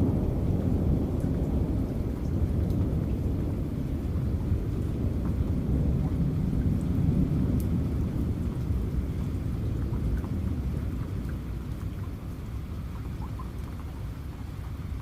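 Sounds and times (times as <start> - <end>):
low rolling thunder: 0.0 - 12.5
rain falling: 0.0 - 15.0.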